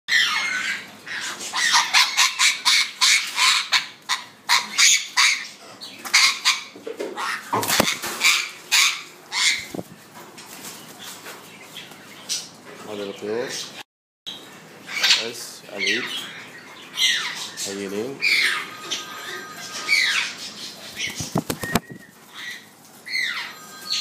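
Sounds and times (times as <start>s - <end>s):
young birds calling: 14.4s - 19.1s, 19.9s - 23.6s.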